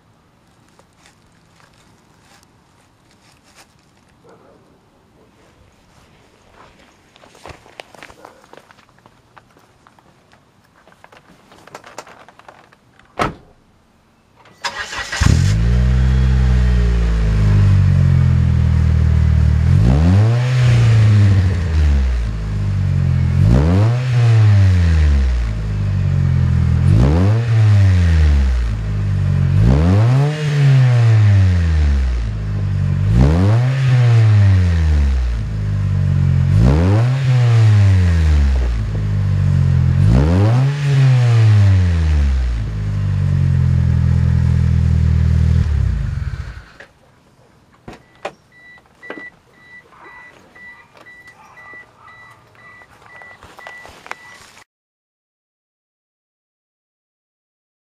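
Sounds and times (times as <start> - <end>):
car engine starting and idling: 14.4 - 46.8
car engine revving: 14.6 - 46.8.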